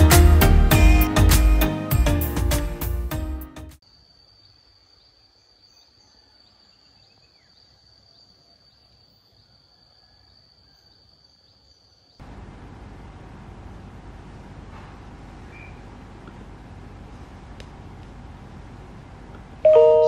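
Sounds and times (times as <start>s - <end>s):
insects trilling: 3.8s - 12.2s.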